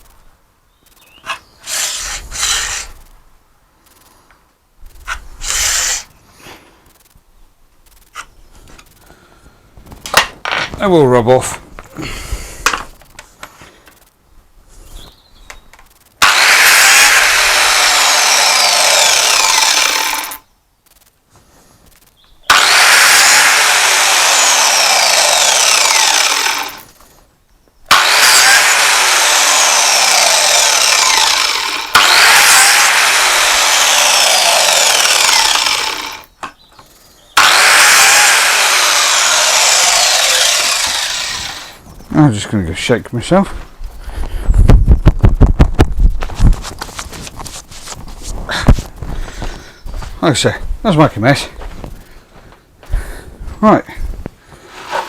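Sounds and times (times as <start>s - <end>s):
biscuit joiner cutting wood: 1.2s - 3.1s, 5.0s - 6.1s, 16.2s - 20.4s, 22.5s - 26.9s, 27.9s - 36.3s, 37.4s - 41.8s, 54.6s - 55.0s.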